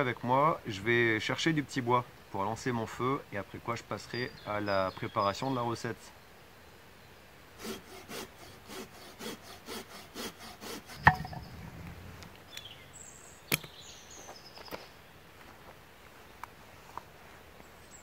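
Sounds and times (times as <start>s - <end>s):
saw cutting branch: 7.6s - 11.5s.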